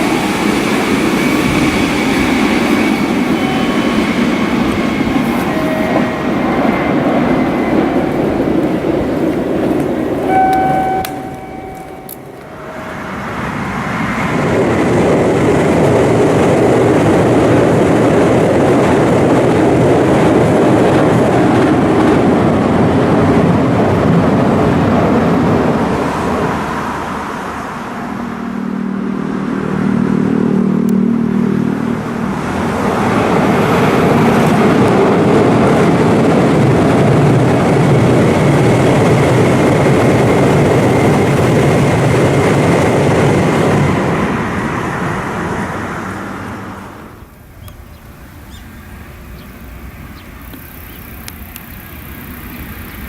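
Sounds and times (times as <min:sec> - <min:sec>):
electric train passing: 0:00.0 - 0:53.0
low hum: 0:03.6 - 0:14.8.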